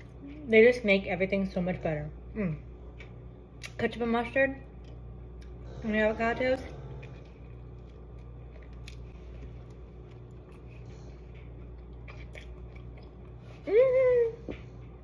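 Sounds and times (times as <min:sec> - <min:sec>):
low room hum: 0:00.0 - 0:15.0
person biting and chewing: 0:07.0 - 0:13.4.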